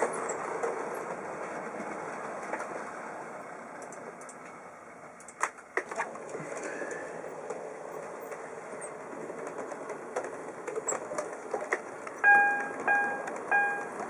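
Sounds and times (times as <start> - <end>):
track clicks: 3.7 - 4.6, 9.4 - 14.0
electronic ding: 12.2 - 13.9.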